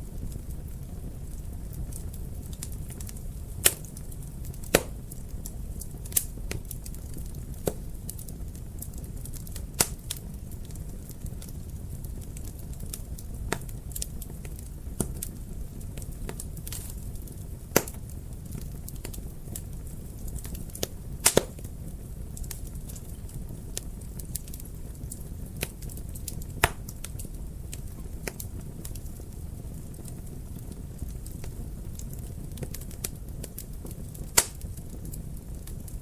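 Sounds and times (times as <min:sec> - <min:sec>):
fire pops and snaps: 0:00.0 - 0:36.0
wood fire crackling: 0:00.0 - 0:36.0.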